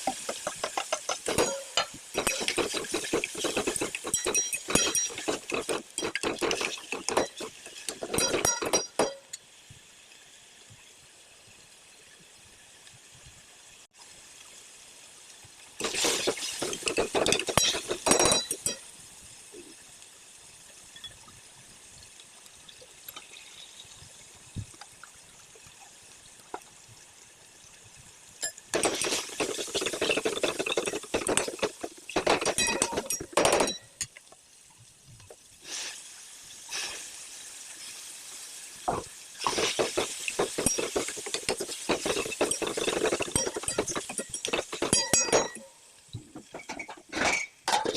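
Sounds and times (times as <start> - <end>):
metal spoon scraping a pan: 0.2 - 9.3, 15.8 - 18.8, 39.4 - 45.7.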